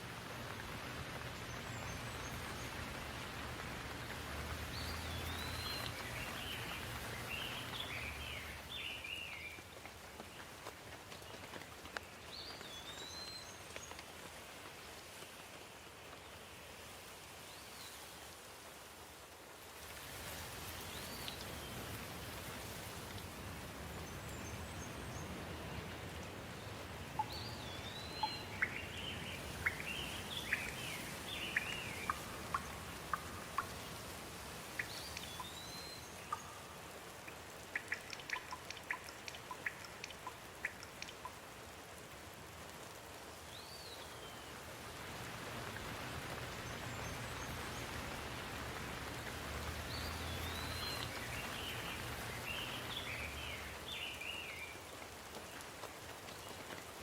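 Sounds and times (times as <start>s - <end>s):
steady rain: 0.0s - 57.0s
sharp drip ticks: 0.6s - 14.4s, 25.8s - 43.0s, 45.7s - 56.8s.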